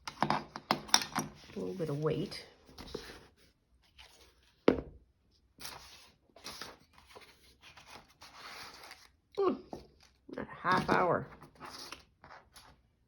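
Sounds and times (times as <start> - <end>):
paper rustling and scraping: 1.4 - 4.6, 5.6 - 9.2, 11.4 - 12.8.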